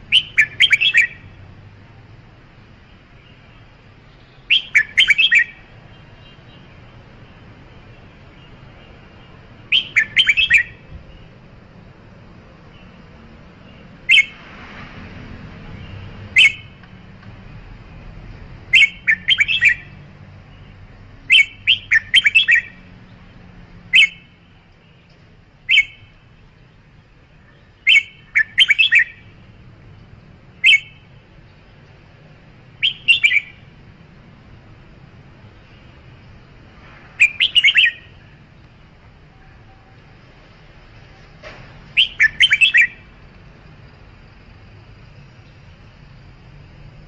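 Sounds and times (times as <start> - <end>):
bulbul chirpy calls: 0.0 - 1.4, 4.2 - 6.8, 8.7 - 11.3, 13.6 - 14.4, 15.8 - 16.8, 18.6 - 22.9, 23.8 - 25.0, 25.6 - 26.2, 27.4 - 29.4, 30.5 - 31.2, 32.6 - 33.8, 37.2 - 38.4, 41.9 - 43.2.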